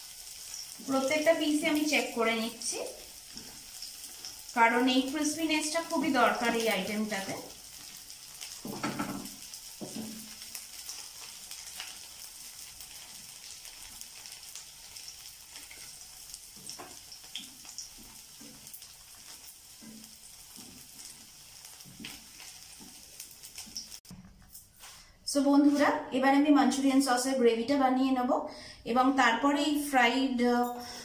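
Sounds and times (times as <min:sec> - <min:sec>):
cauliflower sizzling in oil: 0:00.0 - 0:24.1
wooden spatula taps and scrapes: 0:08.6 - 0:10.2, 0:16.6 - 0:18.6, 0:19.8 - 0:21.2, 0:21.8 - 0:23.0.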